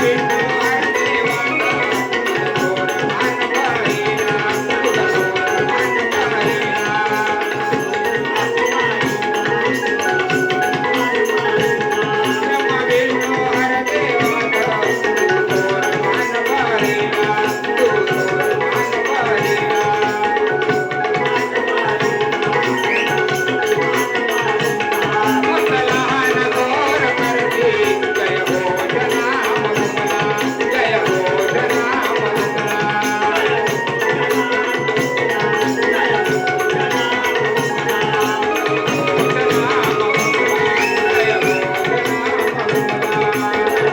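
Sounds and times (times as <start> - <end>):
fast ticking percussion: 0.0 - 43.9
hand drum: 0.0 - 43.9.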